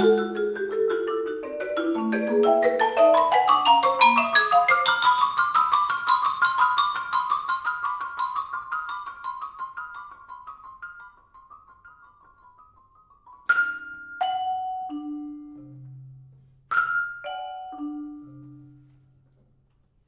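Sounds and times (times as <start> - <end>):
single ringing marimba notes: 0.0 - 6.6, 13.3 - 18.9
rapid marimba notes: 0.0 - 18.9.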